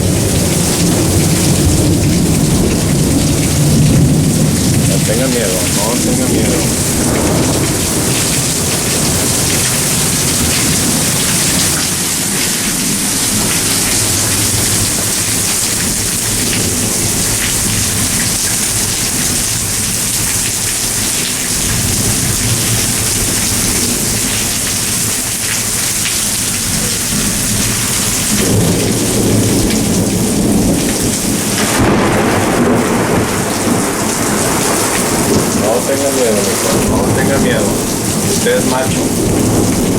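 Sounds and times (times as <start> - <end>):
low rolling thunder: 0.0 - 12.2, 26.6 - 39.9
heavy rain pouring: 0.0 - 39.9.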